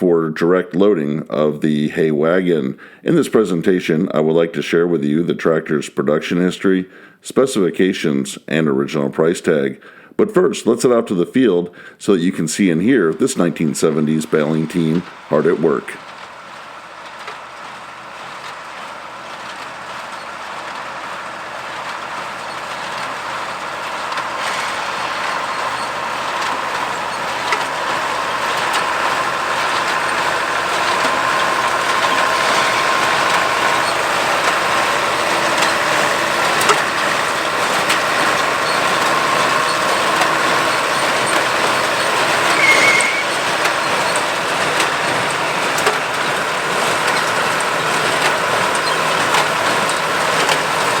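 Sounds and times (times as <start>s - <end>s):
diesel tractor engine under load: 10.7s - 51.0s
high squeak: 38.6s - 44.2s.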